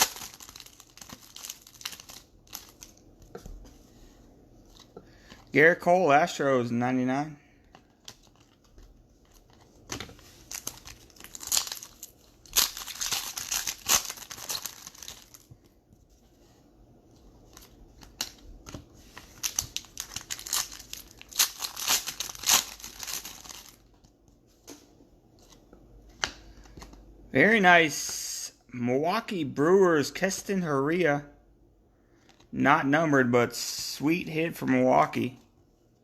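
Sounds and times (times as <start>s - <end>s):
card wrapper crinkling and tearing: 0.0s - 3.0s, 7.7s - 15.6s, 17.4s - 23.9s.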